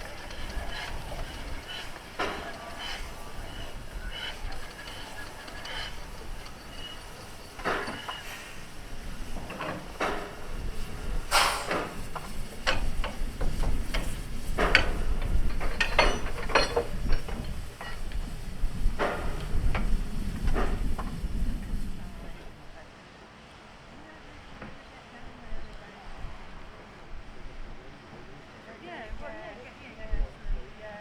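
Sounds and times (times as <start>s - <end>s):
irregular knocks and clanks: 0.0s - 22.5s.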